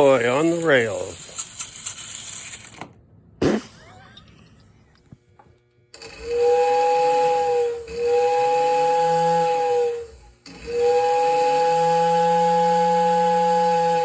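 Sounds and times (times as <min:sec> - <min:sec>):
model steam whistle blasts: 0:06.2 - 0:14.0.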